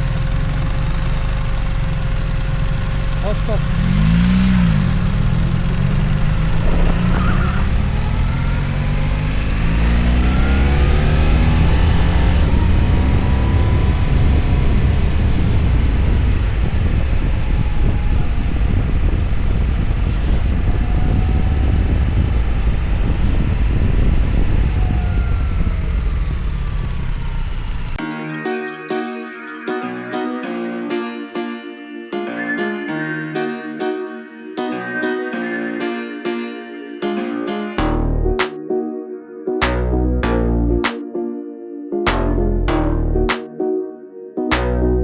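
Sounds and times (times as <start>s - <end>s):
motorcycle engine running: 0.0s - 17.1s.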